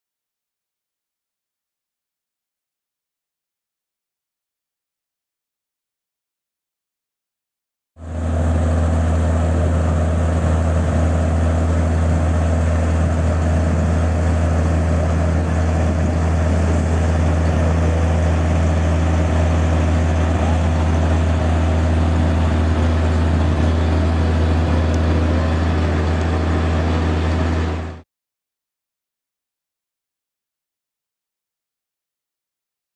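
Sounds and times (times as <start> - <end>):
heavy truck engine idling: 8.0 - 28.0.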